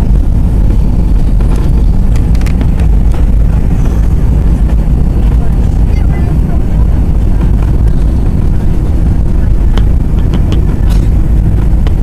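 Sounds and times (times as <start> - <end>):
airplane engine rumble in cabin: 0.0 - 12.0
faint clicks or rattles: 1.6 - 2.9.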